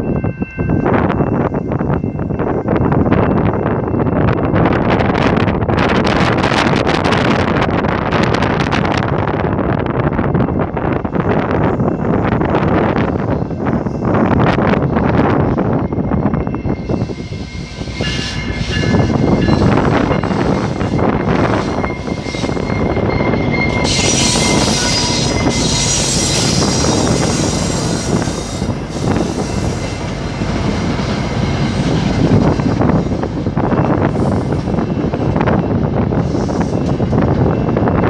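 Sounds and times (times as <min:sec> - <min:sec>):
train rumbling on rails: 0:00.0 - 0:38.0
train wheel squeal: 0:11.1 - 0:38.0.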